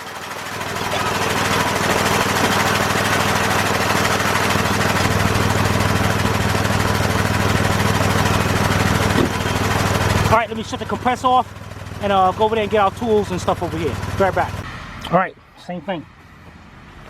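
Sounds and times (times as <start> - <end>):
air compressor chugging: 0.0 - 14.7.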